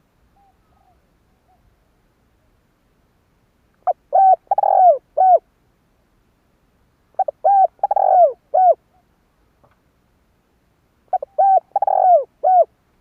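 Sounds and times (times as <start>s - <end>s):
dove cooing: 3.8s - 5.5s, 7.2s - 9.0s, 11.1s - 12.7s.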